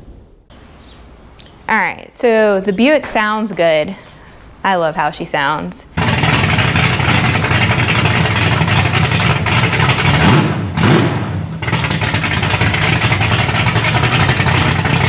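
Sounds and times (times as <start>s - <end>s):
engine exhaust running: 5.9s - 15.0s.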